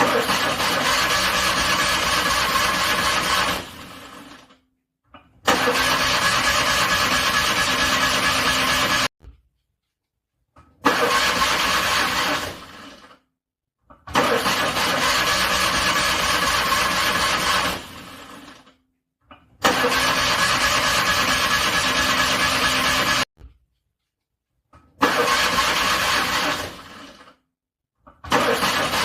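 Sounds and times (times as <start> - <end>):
car engine cranking: 0.0 - 4.4, 5.5 - 9.1, 10.8 - 13.0, 14.1 - 18.5, 19.6 - 23.2, 25.0 - 27.2, 28.3 - 29.0.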